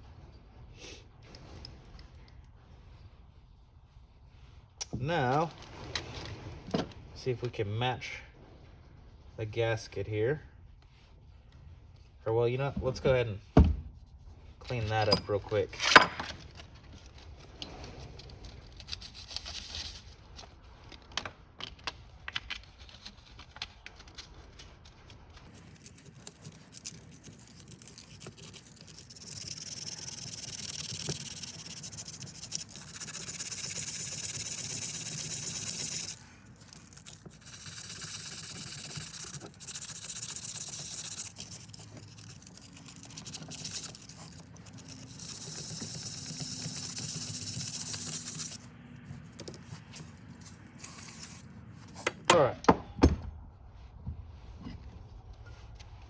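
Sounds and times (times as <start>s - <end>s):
scrubbing or scraping: 22.9s - 52.0s.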